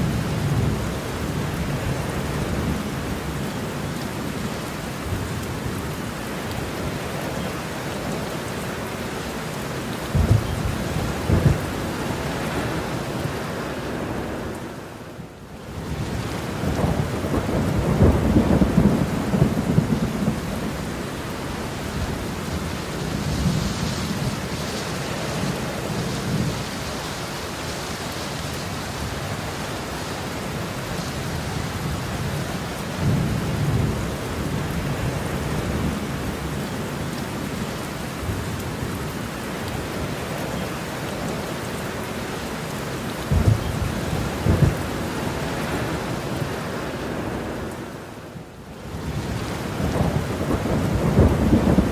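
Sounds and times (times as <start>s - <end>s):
heavy rain: 0.0s - 51.9s
thunder rumbling: 10.0s - 14.4s, 15.9s - 24.7s, 43.2s - 46.6s, 49.0s - 51.9s
sharp thunder claps: 10.1s - 11.7s, 43.3s - 44.9s, 49.9s - 51.9s.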